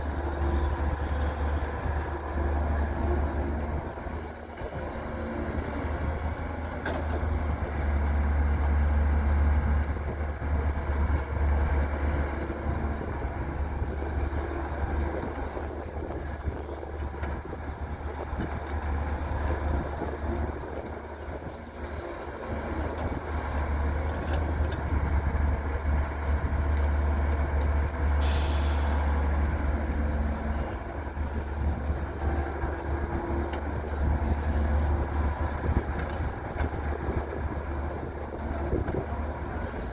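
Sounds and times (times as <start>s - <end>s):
excavator diesel engine rumble: 0.0s - 39.9s
air hiss: 28.2s - 29.0s.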